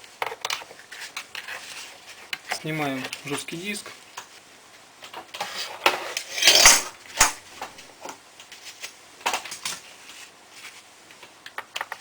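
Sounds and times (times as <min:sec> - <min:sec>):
sharp click: 0:06.4 - 0:07.4.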